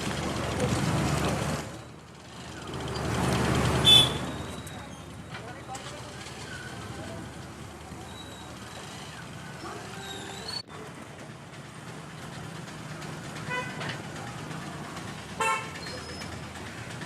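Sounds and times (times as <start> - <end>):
road traffic: 0.0 - 17.0
vehicle horn toots: 3.8 - 4.6, 13.5 - 13.8, 15.4 - 15.8.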